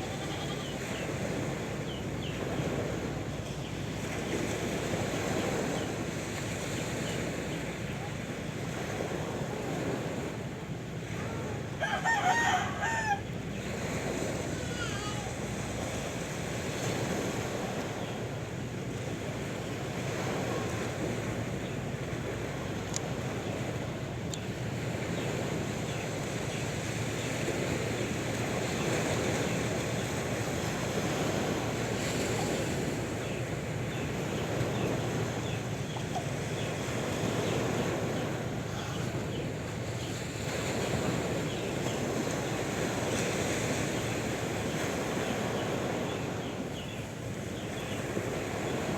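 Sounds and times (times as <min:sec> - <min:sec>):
sea waves surf: 0:00.0 - 0:48.9
rooster crowing: 0:11.8 - 0:13.3.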